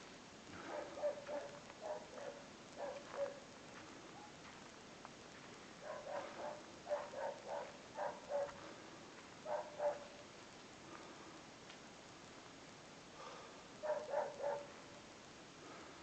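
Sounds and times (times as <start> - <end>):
dog barking: 0.6 - 3.5, 5.8 - 8.6, 9.4 - 10.2, 13.8 - 14.8.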